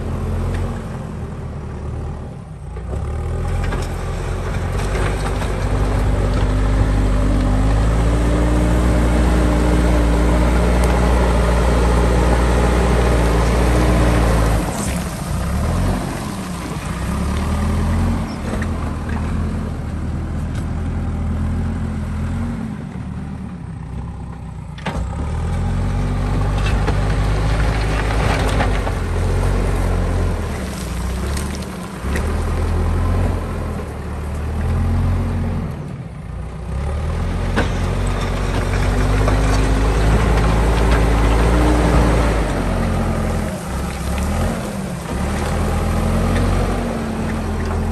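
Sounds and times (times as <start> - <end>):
diesel engine revving under load: 0.0 - 23.8, 36.6 - 47.9.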